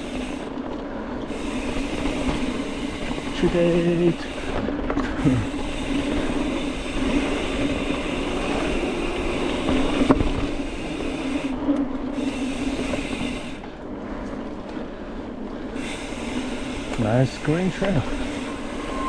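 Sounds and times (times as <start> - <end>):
mountain bike rolling noise: 0.0 - 19.0.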